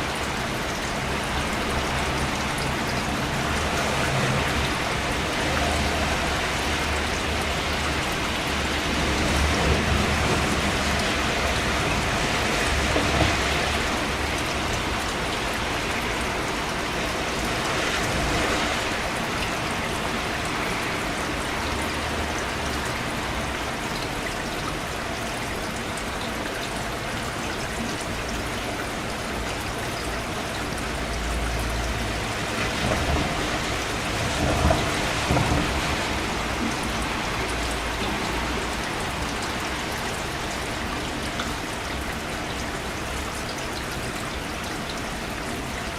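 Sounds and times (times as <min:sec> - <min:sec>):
rain hissing: 0:28.2 - 0:45.6.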